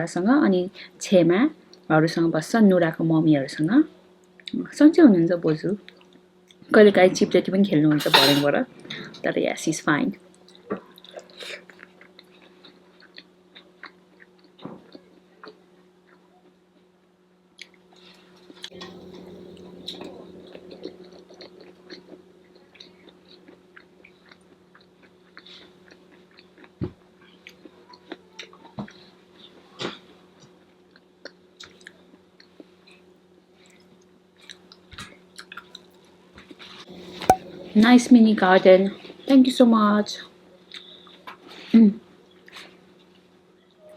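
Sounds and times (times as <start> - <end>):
person chewing food: 10.5 - 16.2, 20.8 - 29.1
steady low hum: 18.6 - 23.3, 36.9 - 39.3.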